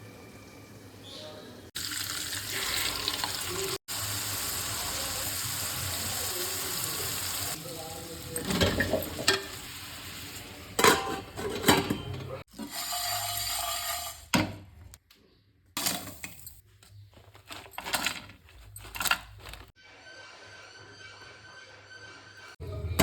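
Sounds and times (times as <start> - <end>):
metal utensils clinking against pots: 8.2 - 9.7, 10.7 - 14.3.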